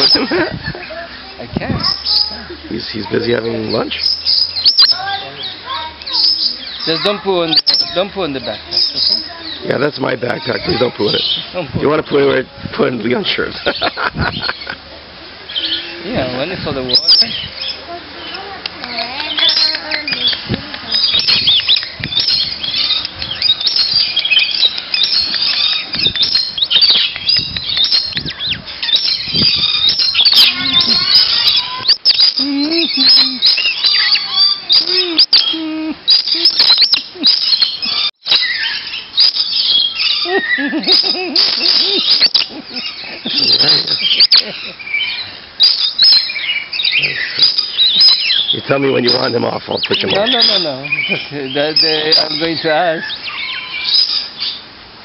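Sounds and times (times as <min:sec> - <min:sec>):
birds chirping and screeching: 0:00.0 - 0:55.0
lower bird squawks: 0:03.3 - 0:08.0, 0:16.9 - 0:51.2.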